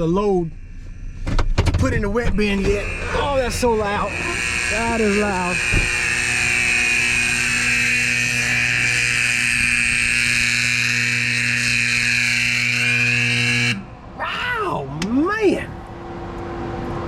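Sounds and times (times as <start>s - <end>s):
steady low hum: 0.0s - 17.0s
high-pitched alarm tone: 2.4s - 13.9s.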